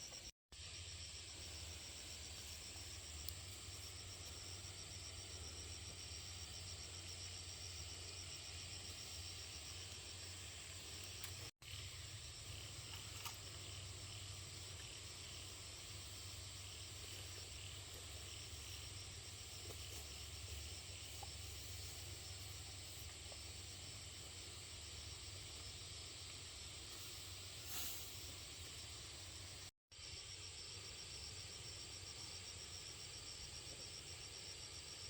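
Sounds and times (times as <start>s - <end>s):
insects chirring: 0.0s - 35.0s.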